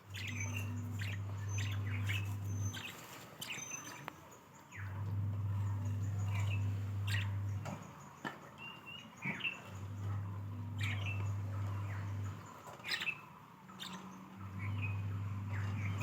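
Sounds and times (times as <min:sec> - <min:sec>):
low hum: 0:00.0 - 0:02.9, 0:04.7 - 0:07.9, 0:09.6 - 0:12.5, 0:14.3 - 0:16.0
budgerigars chirping: 0:00.1 - 0:04.1, 0:05.6 - 0:07.8, 0:08.6 - 0:16.0.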